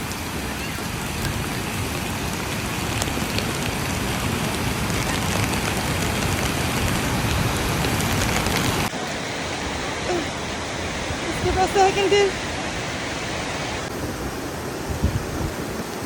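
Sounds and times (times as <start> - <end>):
heavy rain falling: 0.0 - 16.0
waterfall rushing: 0.0 - 16.0
raindrop taps: 2.9 - 3.8.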